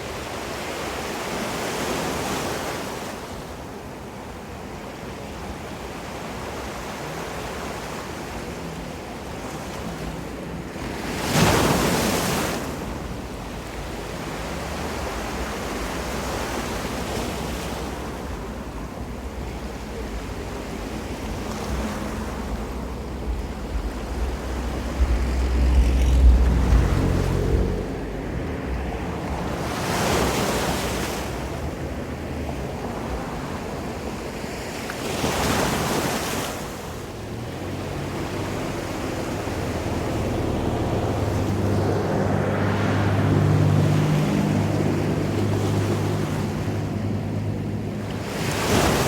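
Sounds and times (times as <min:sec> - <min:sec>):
ocean waves washing ashore: 0:00.0 - 0:49.0
low rumble: 0:21.3 - 0:29.5.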